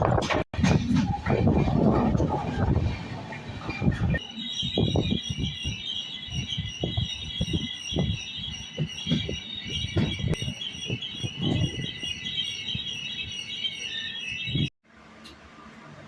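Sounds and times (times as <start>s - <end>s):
pulsing high-pitched chirring: 4.2s - 14.7s
train wheels knocking on rail joints: 8.0s - 10.4s.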